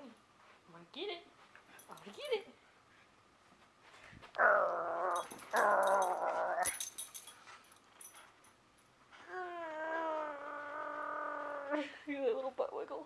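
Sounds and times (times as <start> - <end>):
puppy growly whines: 4.4 - 6.8, 9.2 - 11.9.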